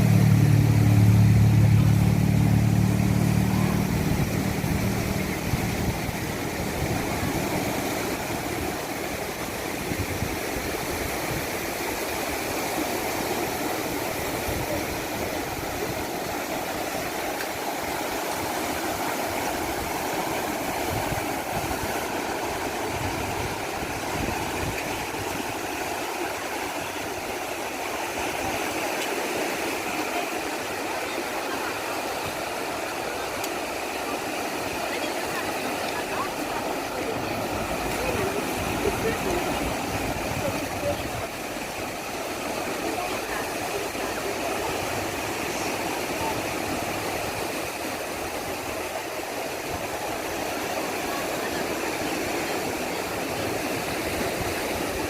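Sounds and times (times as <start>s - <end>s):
vehicle engine hum: 0.0s - 8.7s
heavy surf breaking: 0.0s - 55.0s.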